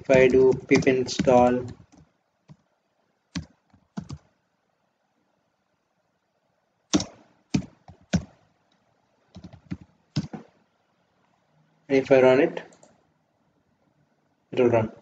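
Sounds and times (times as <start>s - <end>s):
computer keyboard typing: 0.0s - 2.7s, 3.3s - 4.3s, 6.9s - 8.4s, 9.3s - 10.5s.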